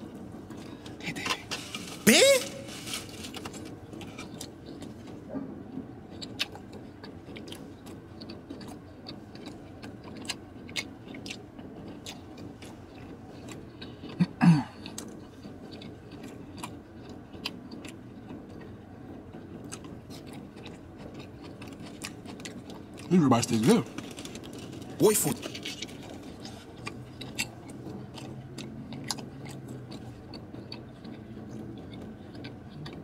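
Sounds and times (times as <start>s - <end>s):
wet chewing noises: 0.0s - 33.0s
short loud vocal sound: 2.0s - 3.1s.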